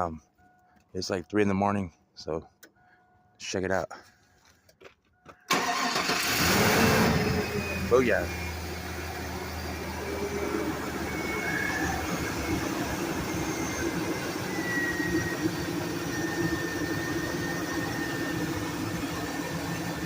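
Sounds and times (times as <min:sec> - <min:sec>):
truck engine idling: 0:05.5 - 0:20.0.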